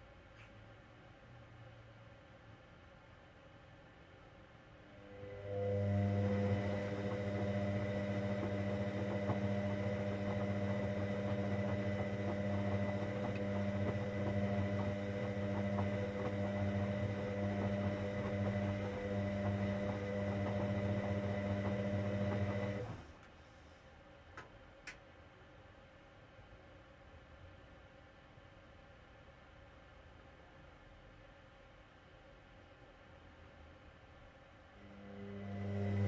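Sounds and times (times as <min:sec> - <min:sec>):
washing machine humming: 0:04.9 - 0:23.3, 0:34.8 - 0:36.0.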